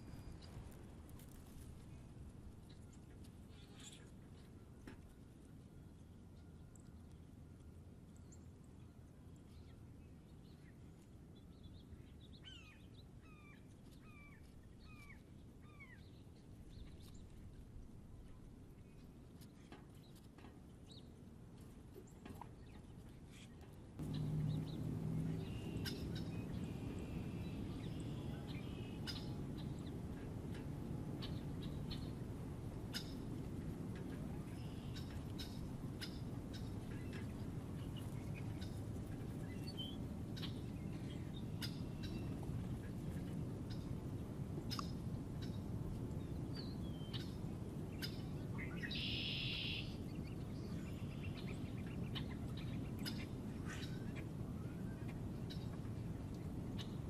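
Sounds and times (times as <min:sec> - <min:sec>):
birds whistling and chirping: 0:24.0 - 0:29.4, 0:48.0 - 0:50.0
low hum: 0:24.0 - 0:46.7.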